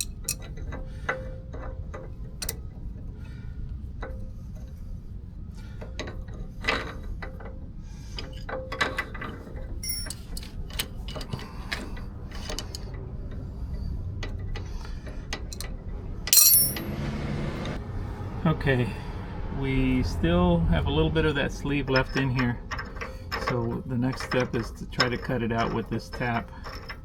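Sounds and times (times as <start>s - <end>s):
hand tools clinking on metal: 0.0s - 0.6s, 9.8s - 10.5s, 16.3s - 17.0s, 21.7s - 27.0s
loud metallic clank: 16.3s - 17.1s.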